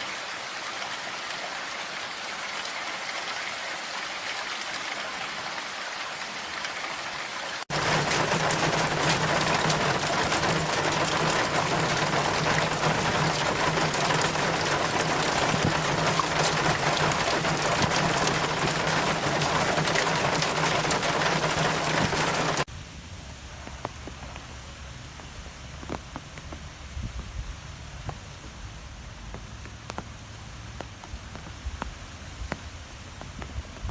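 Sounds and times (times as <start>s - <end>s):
heavy rain: 0.0s - 33.9s.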